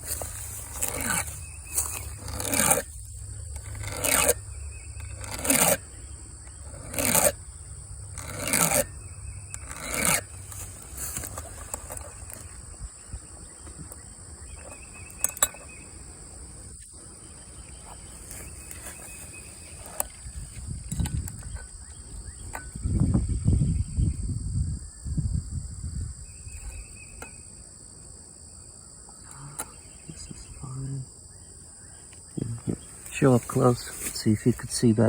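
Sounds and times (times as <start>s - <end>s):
low rumbling handling noise: 0.0s - 24.6s
insects droning: 0.0s - 35.0s.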